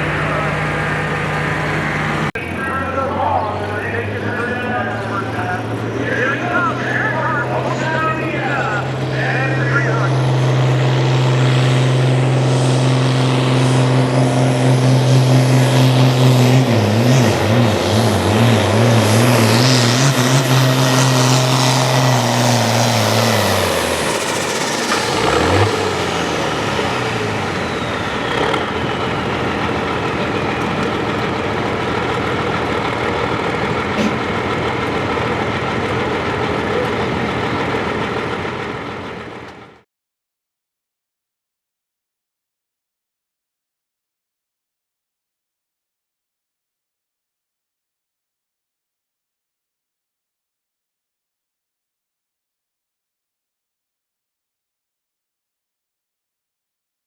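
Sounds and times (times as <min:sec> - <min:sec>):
tractor engine running flat out: 0:00.0 - 0:39.8
turbo whistle winding down: 0:23.3 - 0:29.8.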